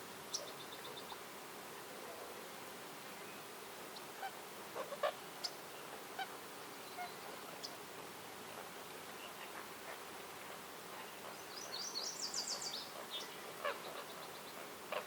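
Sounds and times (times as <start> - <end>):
steady background hiss: 0.0 - 15.0
wild birds calling: 11.0 - 15.0.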